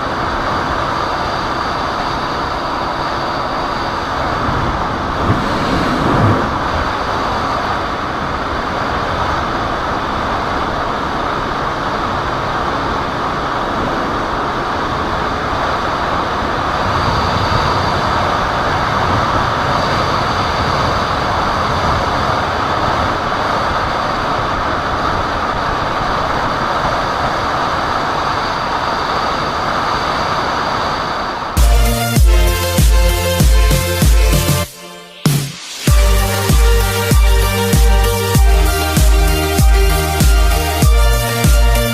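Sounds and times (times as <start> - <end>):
wind rushing: 3.7 - 8.8.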